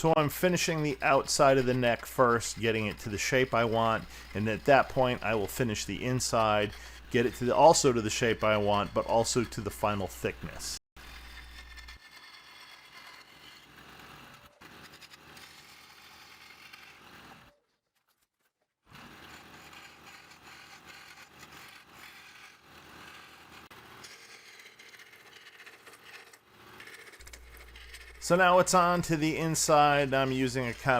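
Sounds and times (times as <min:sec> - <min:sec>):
lathe tool cutting spinning wood: 0:00.0 - 0:11.6, 0:18.9 - 0:30.9.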